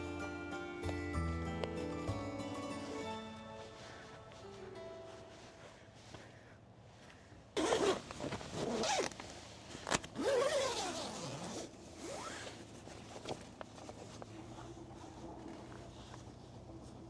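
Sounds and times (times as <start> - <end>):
zipper being pulled: 7.6 - 12.6.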